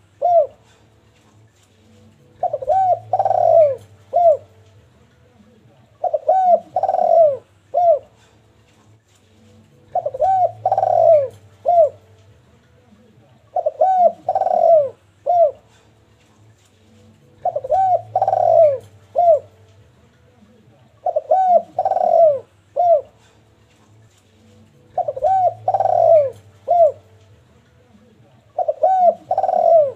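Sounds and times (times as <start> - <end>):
dove cooing: 0.0 - 1.0, 2.2 - 4.6, 5.4 - 8.4, 9.8 - 12.1, 13.5 - 16.0, 17.2 - 19.6, 20.9 - 23.4, 24.8 - 27.2, 28.0 - 29.9.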